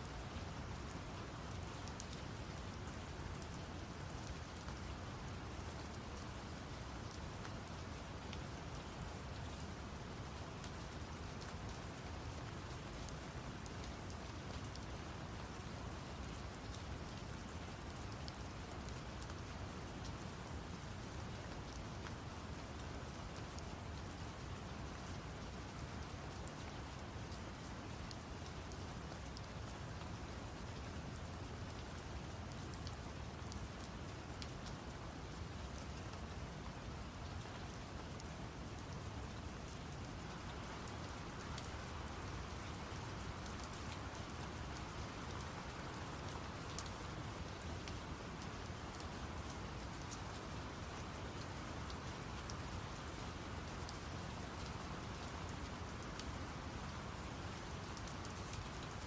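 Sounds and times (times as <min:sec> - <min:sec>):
steady rain: 0:00.0 - 0:59.0
raindrops ticking on a surface: 0:00.1 - 0:59.0.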